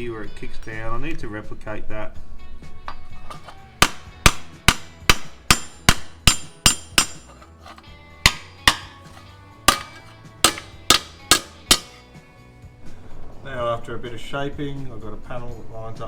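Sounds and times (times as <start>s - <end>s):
hammer striking steel panel: 3.8s - 7.4s, 8.3s - 12.0s.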